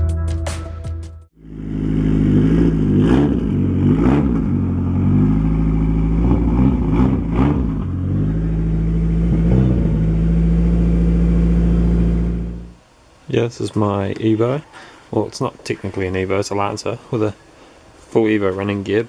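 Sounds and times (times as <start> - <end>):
music: 0.0 - 1.4
turbo engine revving: 1.4 - 12.8.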